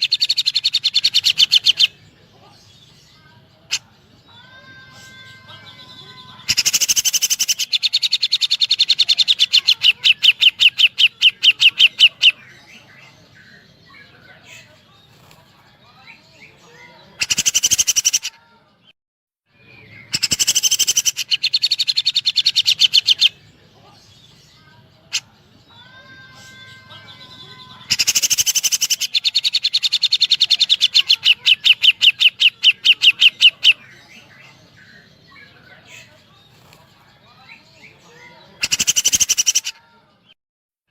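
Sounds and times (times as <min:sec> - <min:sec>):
bird rapid-fire chirping call: 0:00.0 - 0:02.0, 0:06.4 - 0:12.5, 0:17.2 - 0:18.3, 0:20.1 - 0:23.4, 0:27.8 - 0:34.1, 0:38.6 - 0:39.7.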